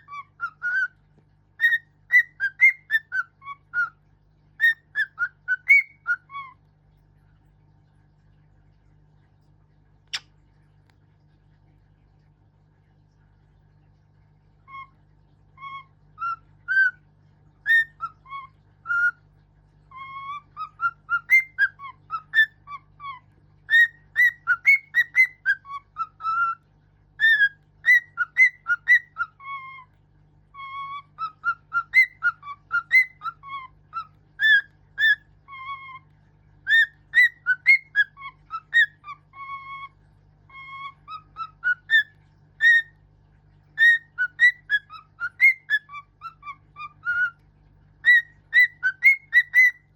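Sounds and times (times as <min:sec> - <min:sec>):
pet bird whistling: 0:00.0 - 0:00.9, 0:01.6 - 0:03.9, 0:04.6 - 0:06.5, 0:15.6 - 0:17.0, 0:17.6 - 0:19.2, 0:19.9 - 0:26.6, 0:27.2 - 0:29.8, 0:30.6 - 0:36.0, 0:36.7 - 0:39.9, 0:40.5 - 0:42.9, 0:43.8 - 0:47.4, 0:48.0 - 0:49.9.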